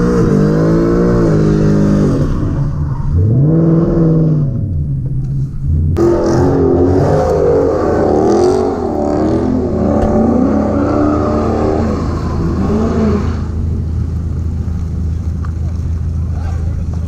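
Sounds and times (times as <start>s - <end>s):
car engine revving hard: 0.0s - 4.6s, 5.9s - 14.0s.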